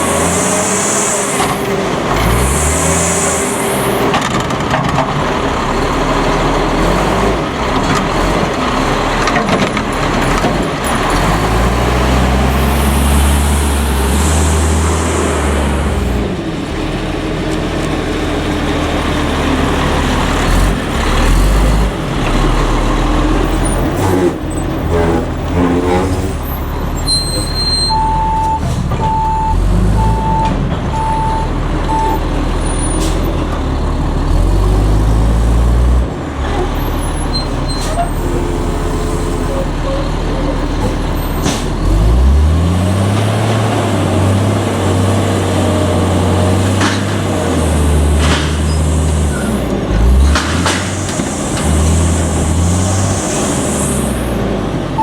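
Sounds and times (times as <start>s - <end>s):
garbage truck diesel engine revving: 0.0s - 55.0s
reverse alarm beeping: 27.2s - 32.2s.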